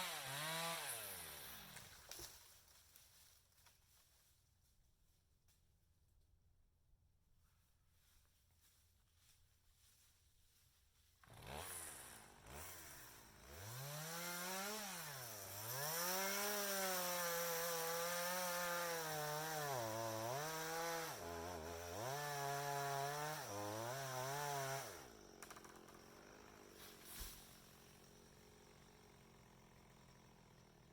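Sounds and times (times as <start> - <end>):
two-stroke chainsaw revving: 0.0 - 1.9, 11.2 - 30.9.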